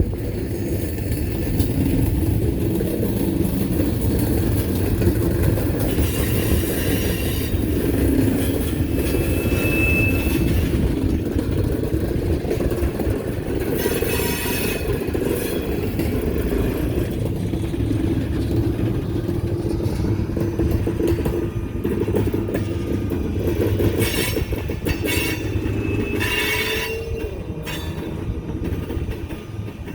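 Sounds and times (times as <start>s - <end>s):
train wheels rumbling on rail: 0.0s - 29.9s
high wheel squeal: 5.9s - 11.3s, 13.7s - 15.8s, 23.9s - 28.4s.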